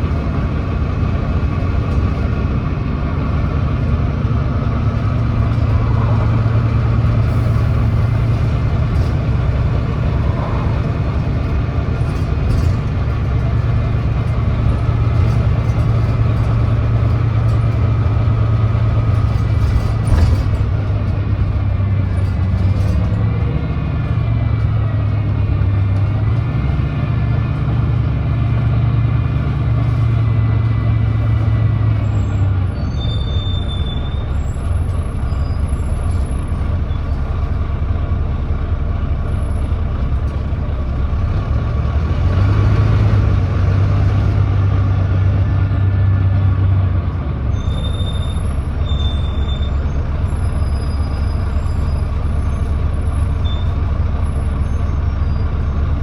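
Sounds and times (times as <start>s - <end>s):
bus diesel engine drone: 0.0s - 56.0s.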